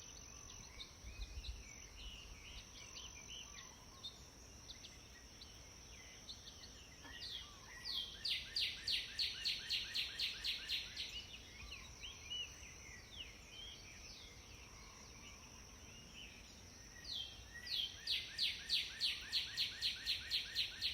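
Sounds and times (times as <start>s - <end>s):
faint chirps: 0.0s - 20.9s.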